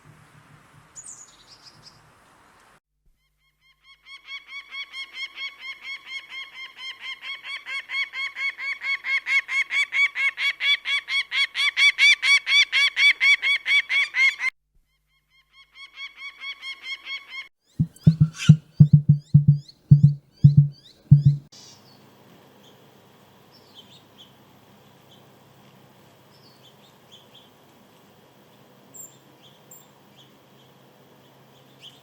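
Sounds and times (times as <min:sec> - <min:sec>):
large bird calling short hooked notes: 0:17.8 - 0:21.4.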